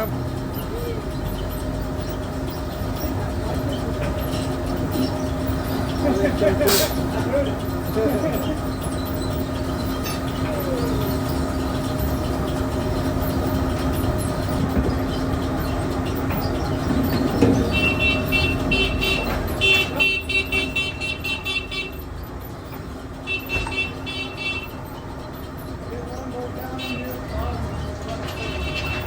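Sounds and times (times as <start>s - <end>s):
machinery humming: 0.0s - 29.0s.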